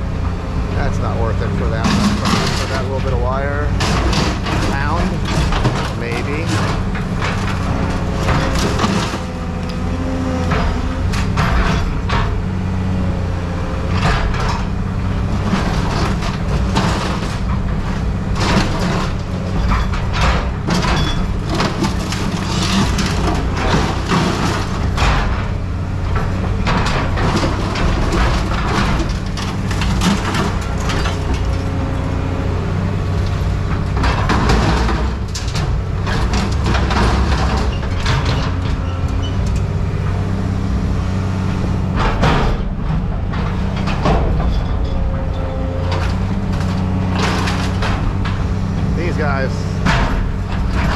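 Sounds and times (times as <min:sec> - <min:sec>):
heavy machine engine droning: 0:00.0 - 0:50.9
scrap metal clanking: 0:01.0 - 0:12.3, 0:26.2 - 0:40.4.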